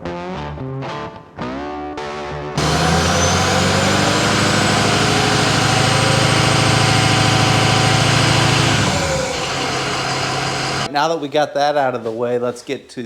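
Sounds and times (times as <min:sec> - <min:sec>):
pickup truck engine idling: 0:02.6 - 0:10.9.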